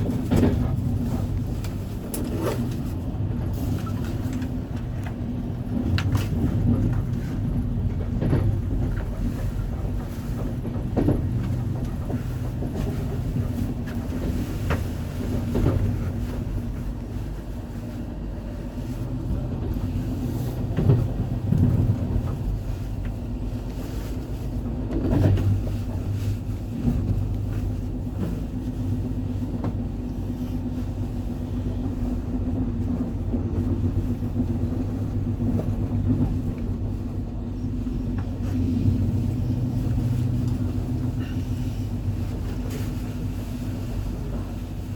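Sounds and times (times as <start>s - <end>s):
train rumbling on track: 0.0s - 44.9s.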